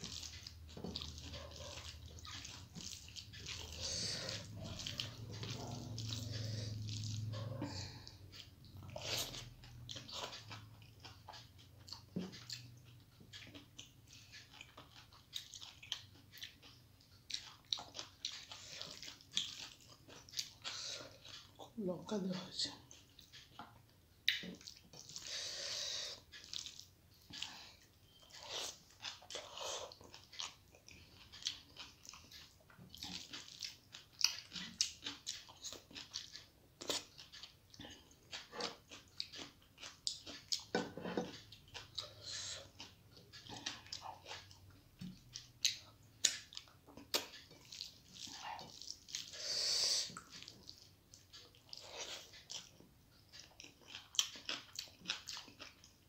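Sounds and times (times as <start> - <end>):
person chewing and smacking: 0.0 - 56.0.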